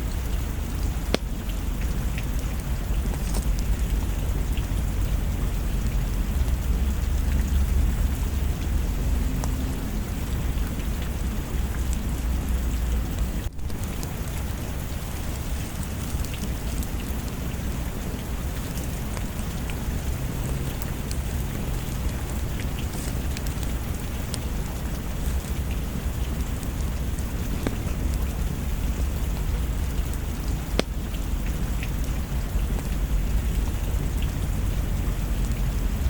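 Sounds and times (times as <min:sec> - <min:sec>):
steady rain: 0:00.0 - 0:36.0.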